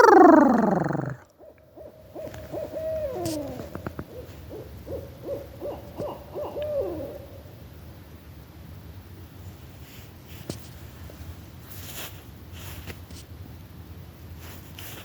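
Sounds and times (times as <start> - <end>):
owl hooting: 0.0 - 7.5.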